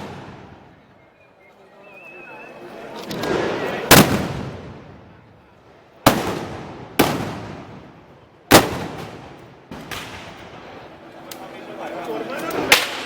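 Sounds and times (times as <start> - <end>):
blank gunshots with echo: 0.0 - 0.7, 3.1 - 5.0, 6.0 - 10.5.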